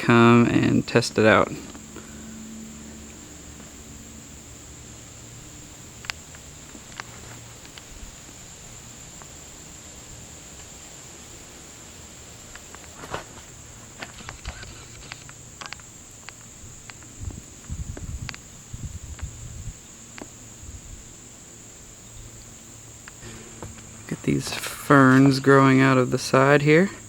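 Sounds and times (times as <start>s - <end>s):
buzzing insect chorus: 0.0s - 27.0s
light clicks and crackles: 6.0s - 8.4s, 12.4s - 18.5s.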